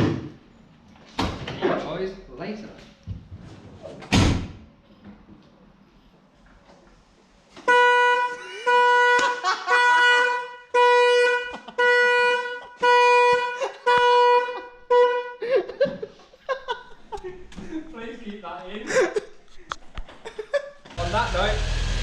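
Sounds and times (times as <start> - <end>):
car horn blasts: 7.6 - 15.4.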